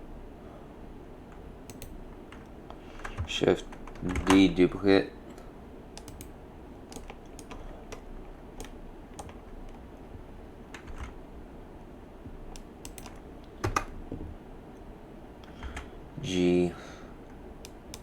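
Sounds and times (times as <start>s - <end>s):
computer keyboard keys pressed: 1.3s - 4.5s, 6.0s - 6.3s, 6.9s - 9.8s, 10.7s - 11.2s, 12.5s - 14.0s, 15.4s - 15.9s, 17.6s - 18.0s.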